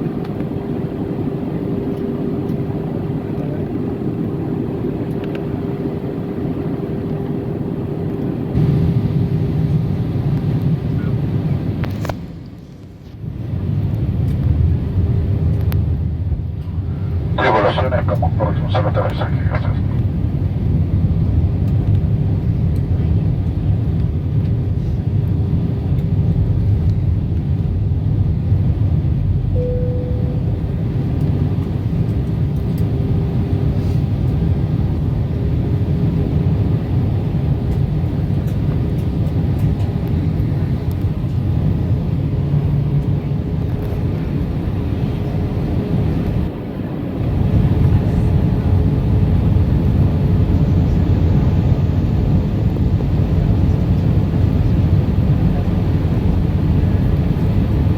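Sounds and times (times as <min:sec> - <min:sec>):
airliner cabin engine rumble: 0:00.0 - 0:57.9
faint steady hum: 0:17.0 - 0:20.1.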